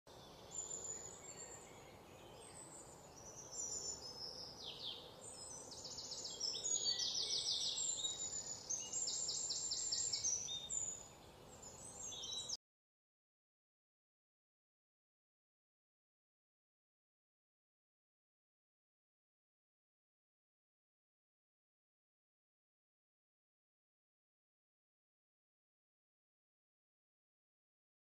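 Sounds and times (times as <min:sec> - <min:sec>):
birds chirping and trilling: 0:00.1 - 0:12.6
faint steady hiss: 0:00.1 - 0:12.6.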